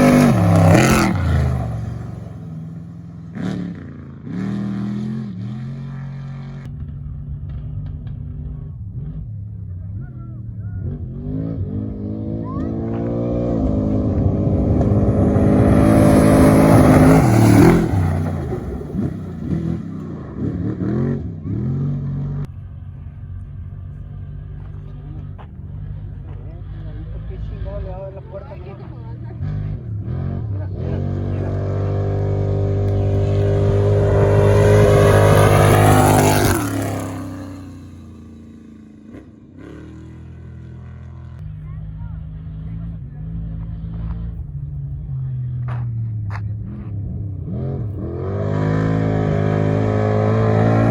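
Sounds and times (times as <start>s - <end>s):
race vehicle engine revving past: 0.0s - 6.5s, 10.8s - 22.5s, 29.1s - 41.3s, 46.3s - 50.9s.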